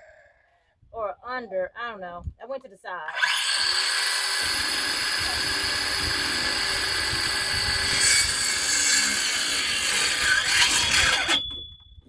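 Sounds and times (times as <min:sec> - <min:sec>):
power saw cutting wood: 0:03.1 - 0:11.4.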